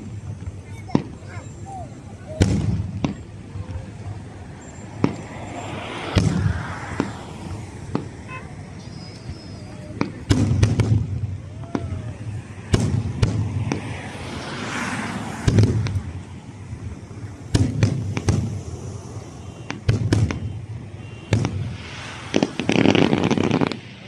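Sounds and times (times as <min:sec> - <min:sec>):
firework bangs: 0:00.0 - 0:24.0
firework crackling: 0:00.0 - 0:24.0.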